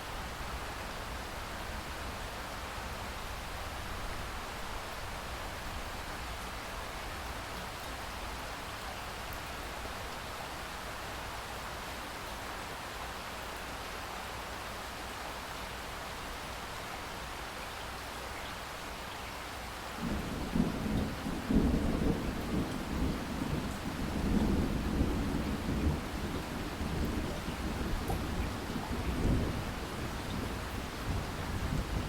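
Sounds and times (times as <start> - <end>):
steady rain: 0.0 - 32.0
thunder rumbling: 20.0 - 32.0.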